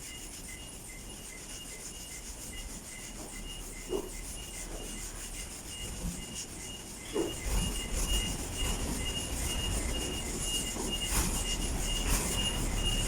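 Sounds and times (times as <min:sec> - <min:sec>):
sanding car panel: 0:00.0 - 0:13.0
brief squeaks: 0:07.0 - 0:13.0.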